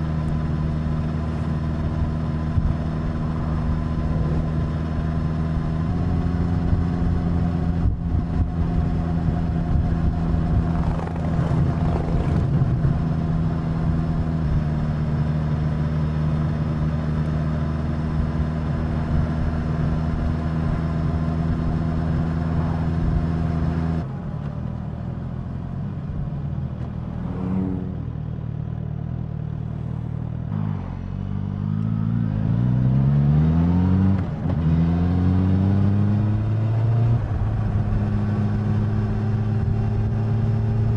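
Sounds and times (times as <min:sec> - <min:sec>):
motorcycle engine revving: 0:00.0 - 0:15.0, 0:26.9 - 0:28.3.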